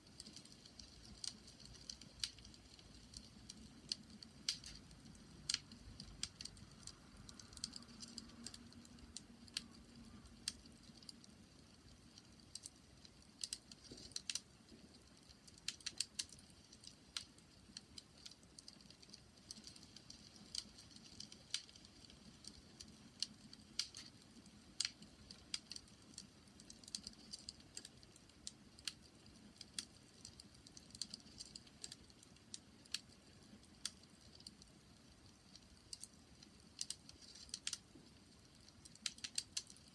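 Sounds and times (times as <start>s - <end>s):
bonfire crackling: 0.0s - 39.9s.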